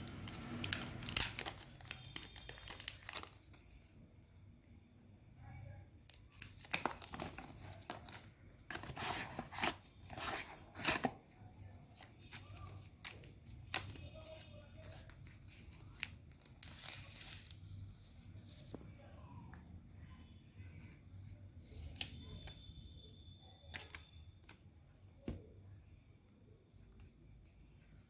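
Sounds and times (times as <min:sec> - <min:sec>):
paper and plastic rustling: 0:00.1 - 0:03.8, 0:06.0 - 0:19.8.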